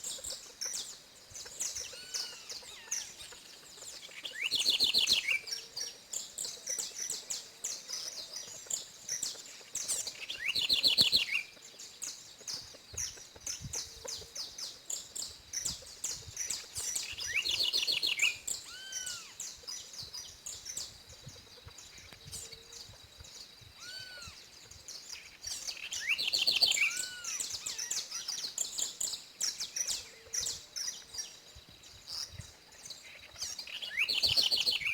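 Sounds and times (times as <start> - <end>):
finch chirping: 23.8 - 31.3, 32.1 - 34.9.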